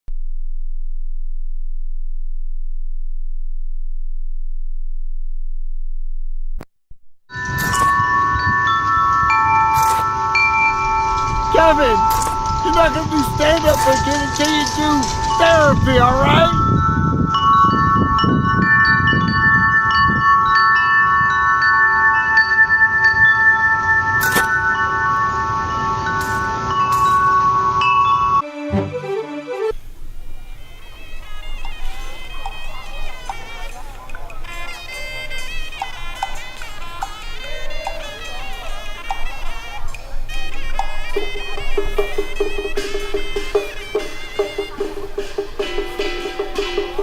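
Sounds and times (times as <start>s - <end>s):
deep steady hum: 0.1s - 6.6s
wind chimes ringing: 7.3s - 28.4s, 29.8s - 47.0s.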